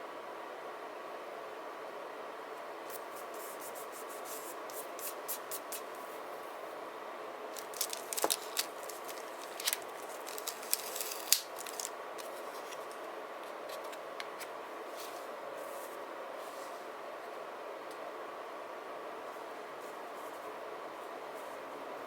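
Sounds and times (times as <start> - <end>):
faint hiss with hum: 0.0 - 22.0
paper snips and rustles: 7.6 - 13.0.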